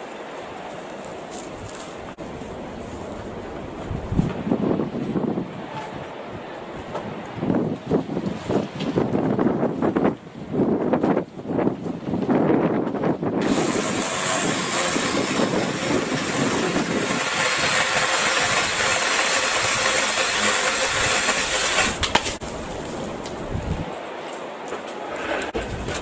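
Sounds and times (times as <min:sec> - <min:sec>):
wind on microphone: 0:01.3 - 0:24.0, 0:25.1 - 0:26.0
saw cutting through branch: 0:13.4 - 0:22.4.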